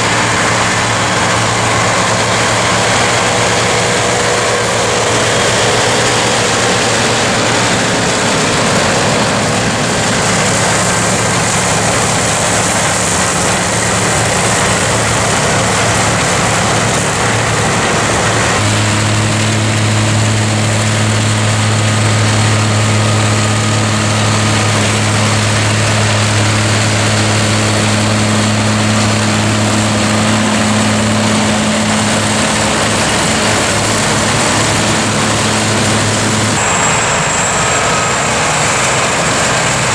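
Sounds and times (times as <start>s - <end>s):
forage harvester cutting: 0.0s - 39.9s
strong low hum: 0.0s - 39.9s
tractor engine running: 0.0s - 39.9s.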